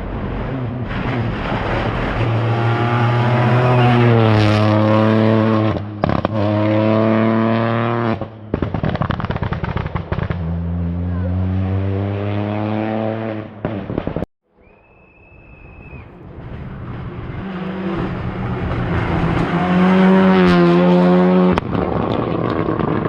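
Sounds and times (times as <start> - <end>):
rally car engine accelerating: 0.0 - 8.3, 10.1 - 14.0, 16.3 - 23.0
exhaust pops and crackles: 5.8 - 6.5, 8.5 - 10.5, 21.4 - 23.0.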